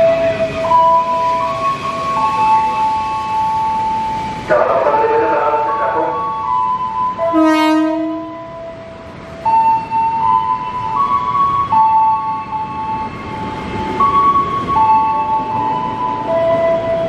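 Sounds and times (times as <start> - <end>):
electric train pulling out: 0.0 - 17.0
train horn blast: 7.2 - 8.6.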